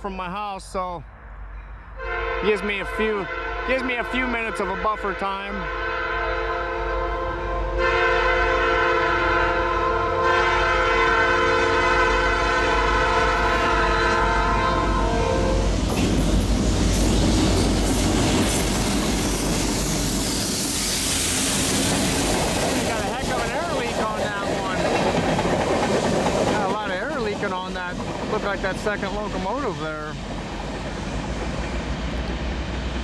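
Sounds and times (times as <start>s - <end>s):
locomotive air horn blast: 2.0s - 15.7s
locomotive engine noise: 12.2s - 33.0s
train wheels clattering on rails: 15.6s - 33.0s.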